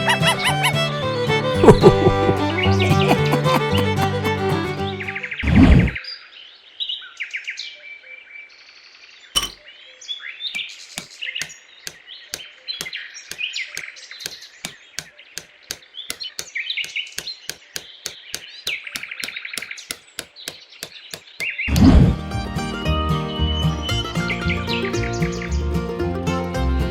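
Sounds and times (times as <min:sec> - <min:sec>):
small birds chirping: 0:00.0 - 0:21.8, 0:23.6 - 0:25.6
sharp taps: 0:01.5 - 0:04.6, 0:10.6 - 0:21.6.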